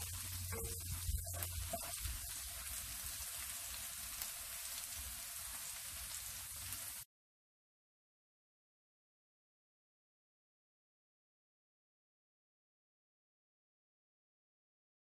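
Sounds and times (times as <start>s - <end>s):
meat sizzling in a frying pan: 0.0s - 7.1s.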